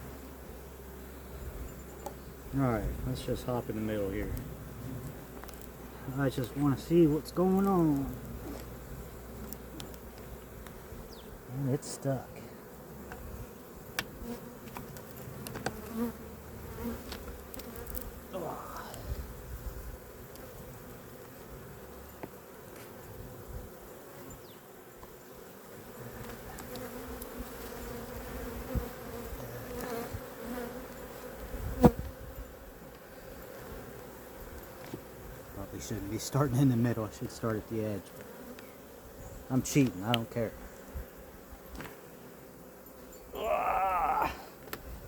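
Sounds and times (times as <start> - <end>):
bees buzzing: 0.0 - 45.0
bee flying past microphone: 25.7 - 35.4.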